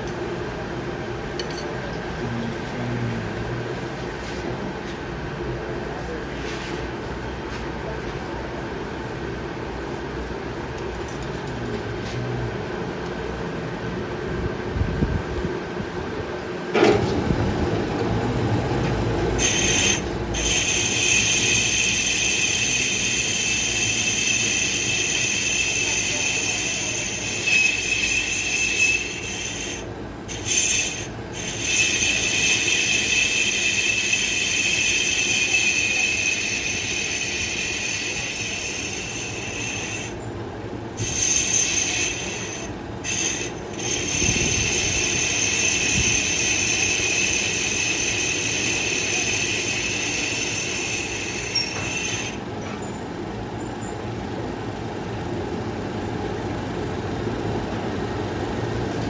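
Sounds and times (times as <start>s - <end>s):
low machine hum: 0.0s - 59.0s
cutting tool screeching on metal: 19.4s - 40.2s, 41.0s - 52.9s.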